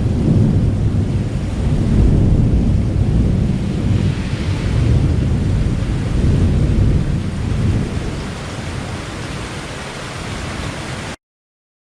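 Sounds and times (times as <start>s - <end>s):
rolling thunder: 0.0s - 9.5s
heavy rain: 0.0s - 11.2s.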